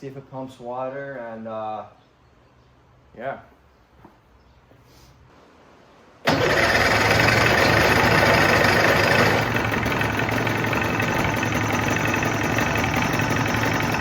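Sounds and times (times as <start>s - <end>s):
outboard motor running: 6.3s - 14.0s.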